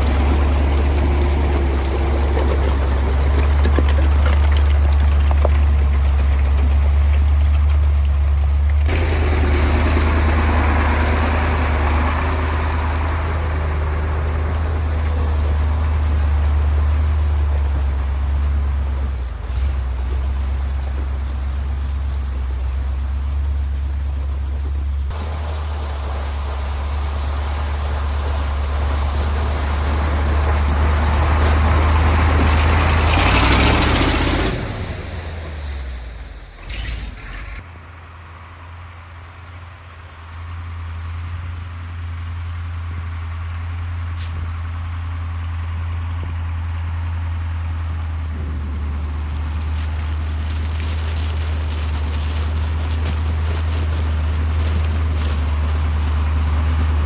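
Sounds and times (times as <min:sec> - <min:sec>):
diesel truck engine rumbling: 0:00.0 - 0:57.0
rush of hissing or splashing: 0:08.9 - 0:17.5, 0:25.1 - 0:37.6.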